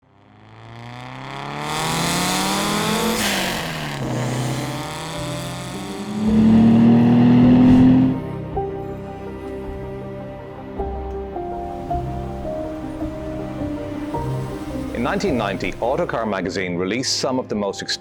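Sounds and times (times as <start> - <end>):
car engine accelerating hard: 0.0 - 10.2, 11.6 - 16.4
gear change burst: 0.3 - 8.3.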